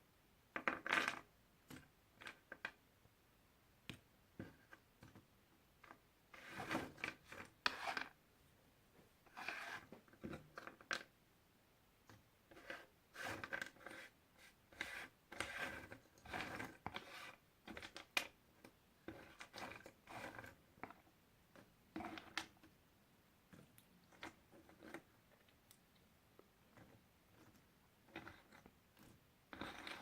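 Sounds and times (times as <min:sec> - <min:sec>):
puzzle pieces rustling and sliding: 0:26.7 - 0:30.0.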